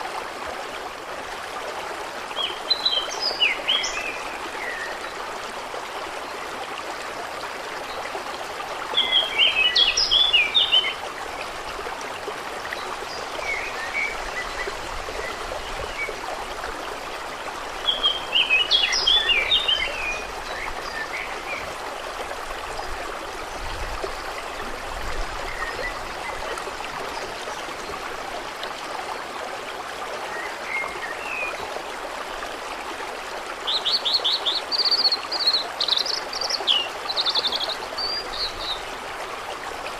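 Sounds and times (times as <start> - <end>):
birds singing: 17.8 - 21.7, 33.7 - 38.9.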